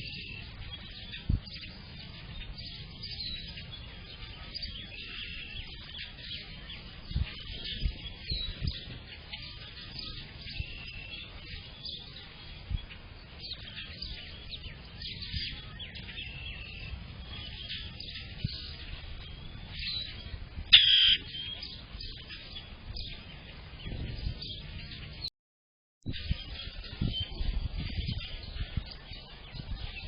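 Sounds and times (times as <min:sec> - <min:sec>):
songbirds chirping and singing: 0:00.0 - 0:25.3, 0:26.1 - 0:30.0
loud close bird call: 0:20.7 - 0:21.8.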